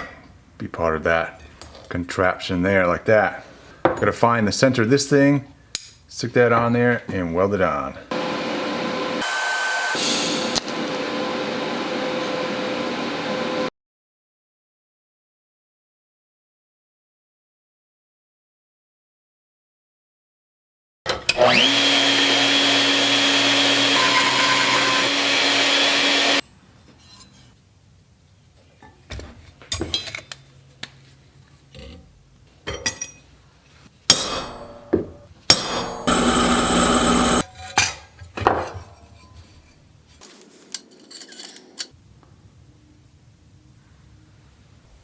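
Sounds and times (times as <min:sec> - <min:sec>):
power tool motor running: 0:08.1 - 0:11.2, 0:21.4 - 0:26.4, 0:36.0 - 0:37.4.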